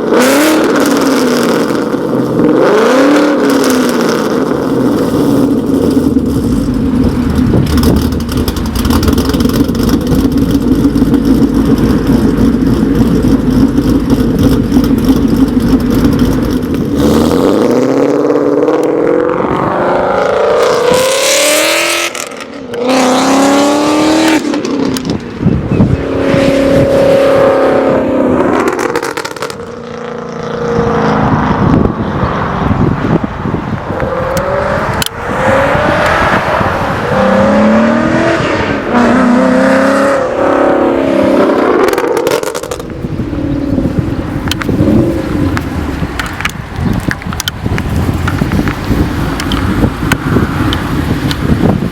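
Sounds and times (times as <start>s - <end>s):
car engine revving: 0.0s - 51.9s
car engine idling lumpy: 4.4s - 17.0s, 42.7s - 51.9s.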